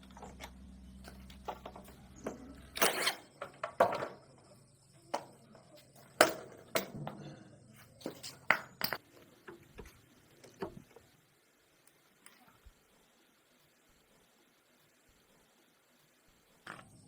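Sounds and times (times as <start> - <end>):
metal tools clinking: 0.0 - 4.2, 5.7 - 7.2, 7.9 - 9.0.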